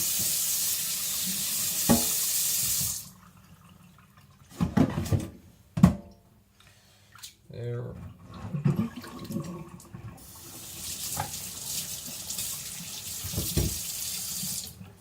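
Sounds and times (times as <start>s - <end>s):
tap water running: 0.0s - 5.2s, 8.0s - 15.0s.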